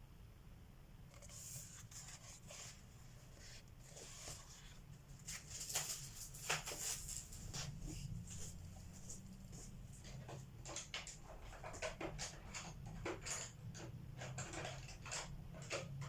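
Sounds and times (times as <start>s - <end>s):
colored pencil scratching paper: 1.1s - 4.8s.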